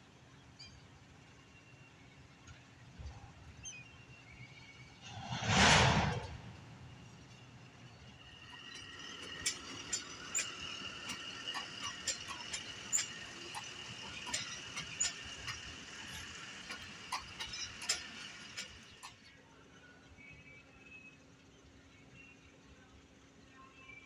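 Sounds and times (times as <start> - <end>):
rush of noise: 5.0 - 7.0
train wheels squealing: 7.0 - 19.3
train clicks and clanks: 7.0 - 19.4.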